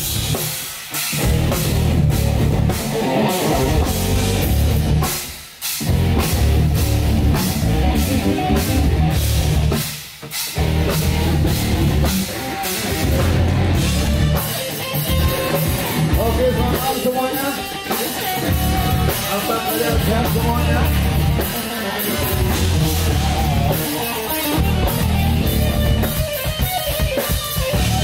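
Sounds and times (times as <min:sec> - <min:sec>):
rock band playing: 0:00.0 - 0:28.0.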